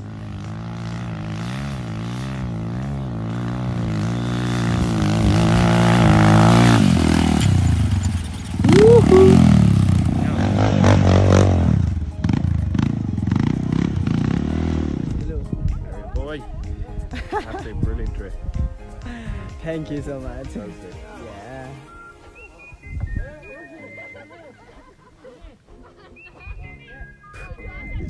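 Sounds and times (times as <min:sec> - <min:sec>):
motorcycle engine revving: 0:00.0 - 0:15.5.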